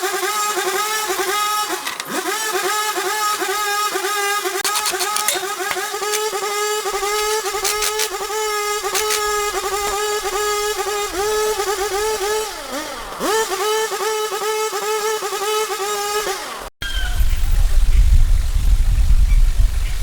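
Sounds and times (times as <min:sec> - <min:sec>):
motor whirring high pitch: 0:00.0 - 0:16.7
sharp clicks: 0:04.6 - 0:10.5.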